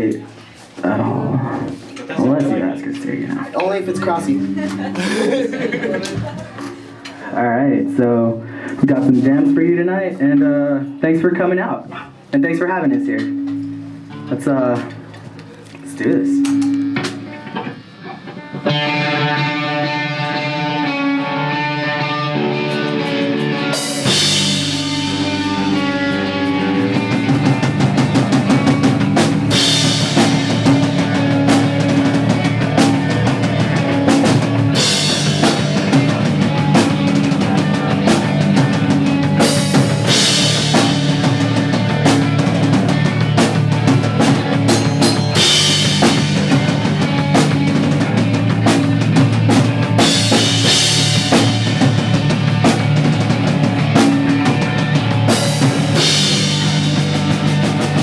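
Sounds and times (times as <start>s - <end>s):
drums: 0.0s - 12.4s, 13.0s - 58.0s
pop punk band playing: 0.8s - 11.5s, 12.2s - 58.0s
electric guitar: 12.9s - 58.0s.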